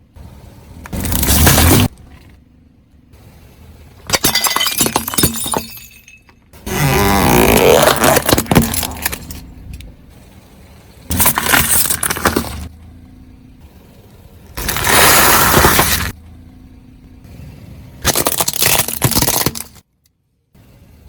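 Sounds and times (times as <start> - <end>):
low steady hum: 0.0 - 21.0
plastic toy cracking and crunching: 7.3 - 9.3, 18.0 - 19.9.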